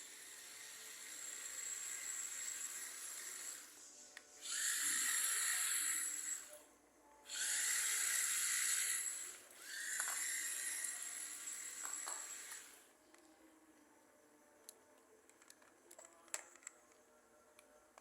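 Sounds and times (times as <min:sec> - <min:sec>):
electric motor whining: 0:04.4 - 0:06.6, 0:07.3 - 0:12.8.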